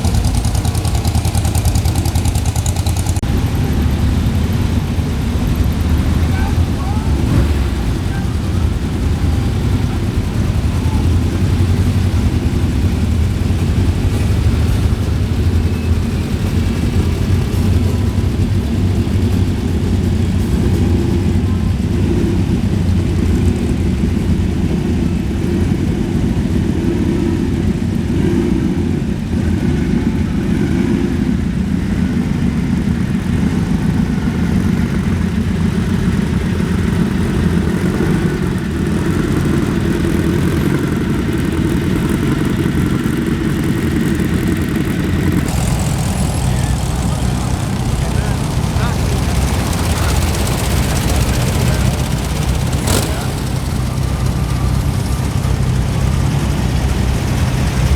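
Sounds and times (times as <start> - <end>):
vehicle engine idling: 0.0 - 57.9.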